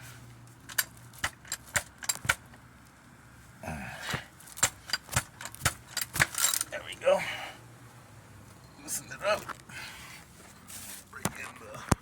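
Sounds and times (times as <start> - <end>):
ratchet clicking on fasteners: 0.7 - 2.6, 4.5 - 6.7.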